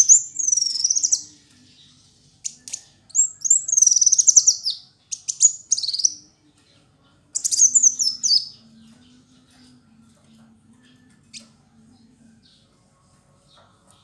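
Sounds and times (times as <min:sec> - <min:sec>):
bird twittering with falling trills: 0:00.0 - 0:01.4, 0:02.4 - 0:06.3, 0:07.4 - 0:08.6.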